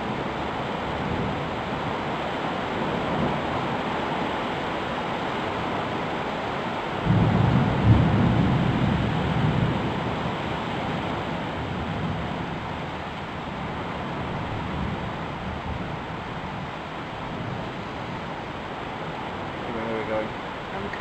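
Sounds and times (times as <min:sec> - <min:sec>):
heavy rain hiss: 0:00.0 - 0:21.0
thunder rumbling: 0:07.0 - 0:21.0.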